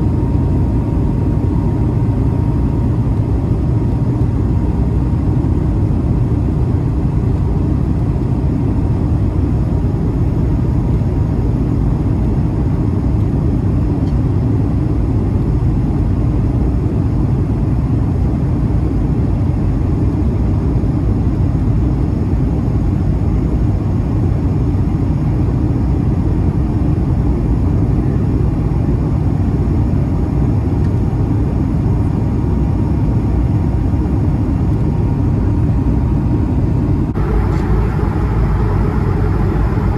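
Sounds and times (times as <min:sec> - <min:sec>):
airliner cabin engine roar: 0:00.0 - 0:39.9
faint steady tone: 0:37.1 - 0:39.9.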